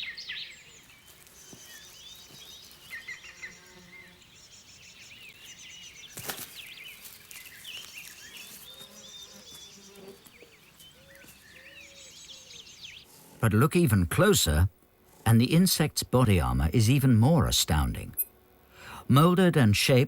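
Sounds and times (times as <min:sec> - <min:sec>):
bird chirps: 0:00.0 - 0:13.1.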